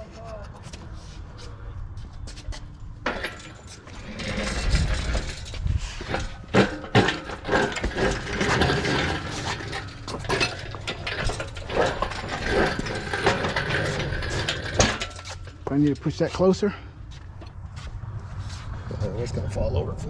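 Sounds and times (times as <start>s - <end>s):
engine hoist chain rattling: 3.0s - 16.8s.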